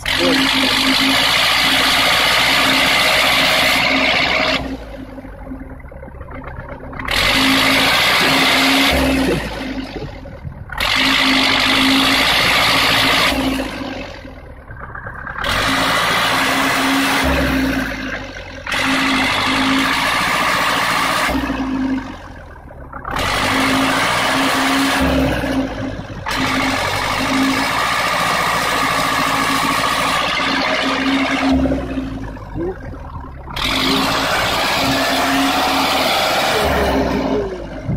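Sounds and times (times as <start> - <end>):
vehicle engine revving hard: 0.0 - 5.1, 6.9 - 37.9.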